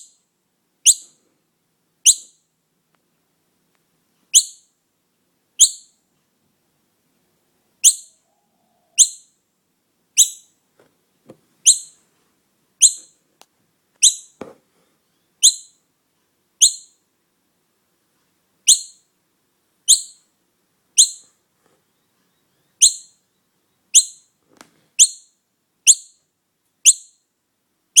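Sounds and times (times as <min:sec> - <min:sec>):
bird calling: 0:11.6 - 0:12.0, 0:14.0 - 0:14.4.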